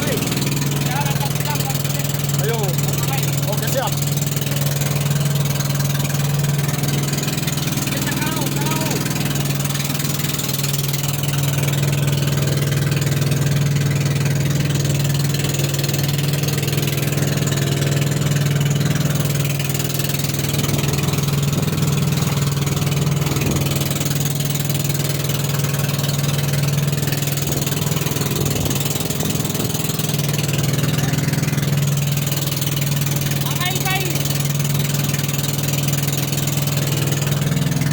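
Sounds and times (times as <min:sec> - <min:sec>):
boat engine running: 0:00.0 - 0:37.9.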